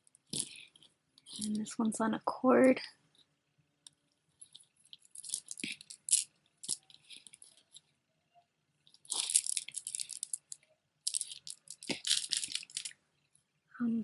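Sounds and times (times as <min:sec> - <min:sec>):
beads clicking and rattling: 0:00.0 - 0:01.7, 0:03.1 - 0:08.0, 0:08.8 - 0:13.0.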